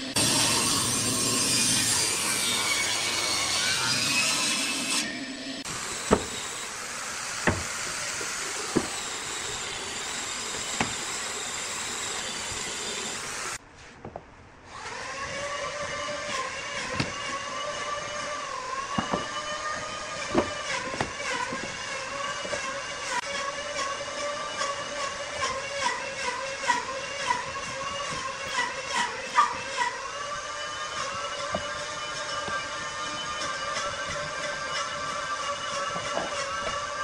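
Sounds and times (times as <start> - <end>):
lathe whine: 0.0 - 13.6
wood lathe cutting hiss: 0.0 - 13.6.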